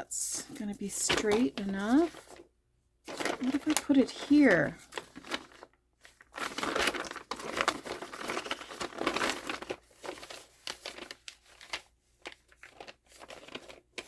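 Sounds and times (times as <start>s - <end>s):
plastic bag crinkling: 3.1s - 14.0s.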